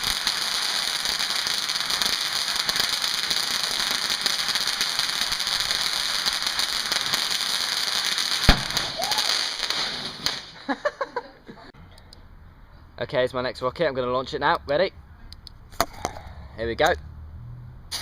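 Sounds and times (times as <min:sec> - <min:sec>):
firework crackling hiss: 0:00.0 - 0:10.6
sharp bang: 0:08.5 - 0:09.1.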